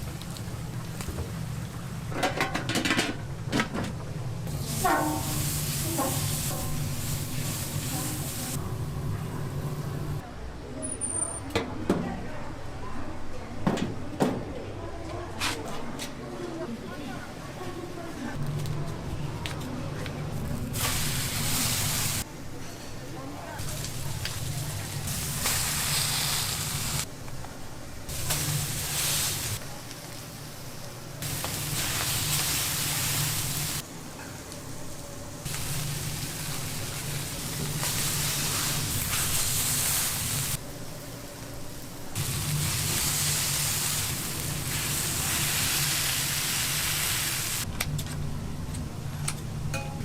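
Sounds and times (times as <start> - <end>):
food sizzling: 4.5 - 10.2, 20.7 - 22.3, 23.6 - 27.1, 28.1 - 33.8, 34.4 - 47.7.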